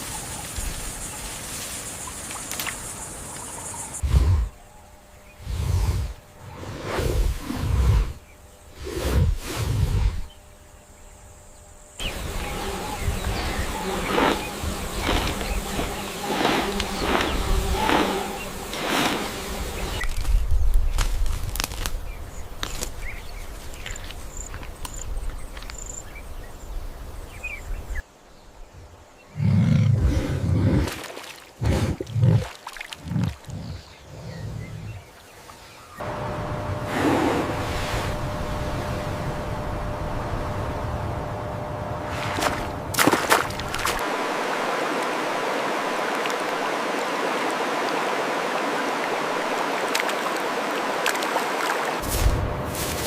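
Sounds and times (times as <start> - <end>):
running water rushing: 41.9 - 52.2.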